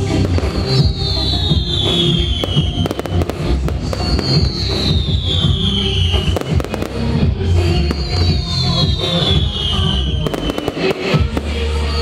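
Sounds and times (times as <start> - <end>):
fireworks popping and crackling: 0.0 - 12.0
loud music with heavy bass: 0.0 - 12.0
sharp firework bangs: 1.6 - 7.1, 7.9 - 11.6.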